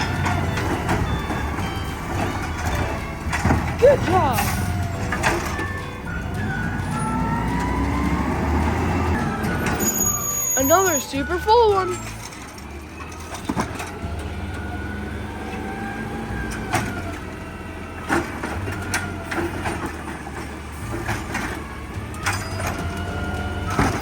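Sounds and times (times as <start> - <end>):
bin bangs and knocks: 0.0 - 7.0, 22.2 - 24.0
garbage truck running: 0.0 - 24.0
hydraulic arm whine: 0.0 - 24.0.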